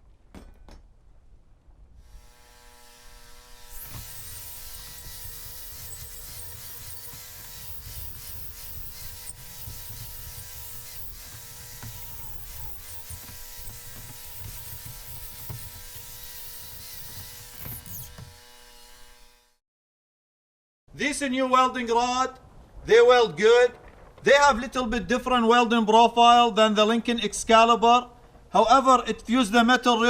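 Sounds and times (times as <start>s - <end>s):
wire brush scrubbing metal: 2.1s - 19.5s.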